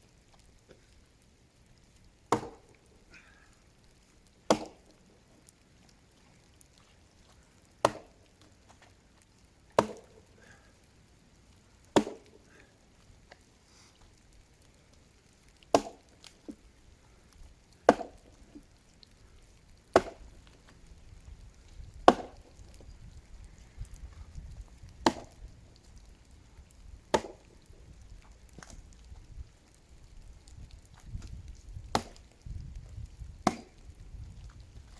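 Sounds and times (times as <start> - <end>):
axe striking tree trunk: 2.3 - 2.7, 4.5 - 4.9, 7.8 - 8.2, 9.8 - 10.2, 12.0 - 12.4, 15.7 - 16.1, 17.8 - 18.3, 19.9 - 20.3, 22.0 - 22.5, 25.0 - 25.4, 27.1 - 27.5, 31.9 - 32.2, 33.4 - 33.8.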